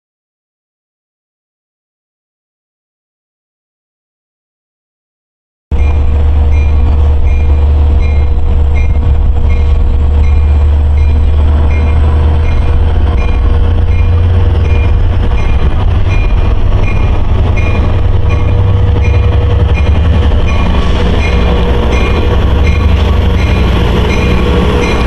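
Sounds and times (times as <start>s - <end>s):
crossing bell dinging: 5.7s - 25.0s
train rumbling: 5.7s - 25.0s.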